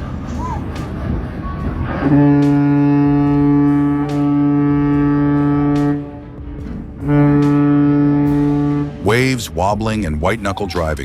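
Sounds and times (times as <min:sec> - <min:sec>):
long horn blast: 0:02.0 - 0:09.3.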